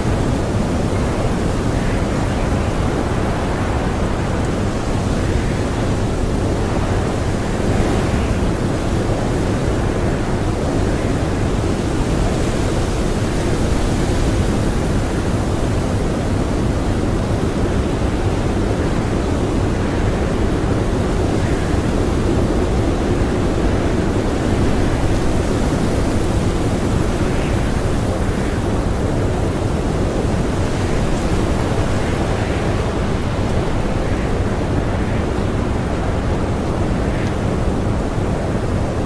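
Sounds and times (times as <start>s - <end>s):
strong blizzard wind: 0.0s - 39.0s.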